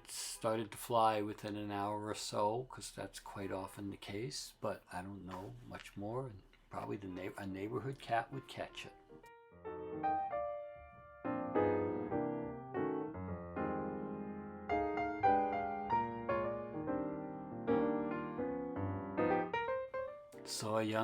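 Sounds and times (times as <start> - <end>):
piano chords ringing: 8.2 - 21.0.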